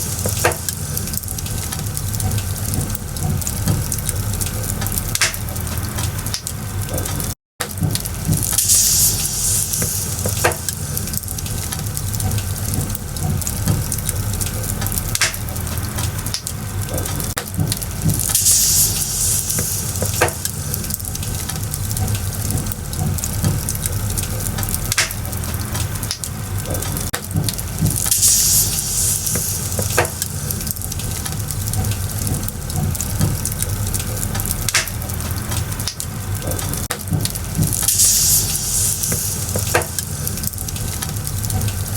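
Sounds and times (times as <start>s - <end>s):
fire hissing: 0.0s - 7.2s, 7.8s - 41.9s
bonfire crackling: 0.0s - 41.9s
fire popping: 0.0s - 41.9s.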